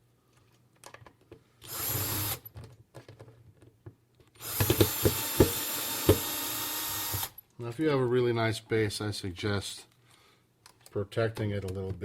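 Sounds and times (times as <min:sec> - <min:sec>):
power screw gun running: 0:01.7 - 0:02.4, 0:04.4 - 0:07.4.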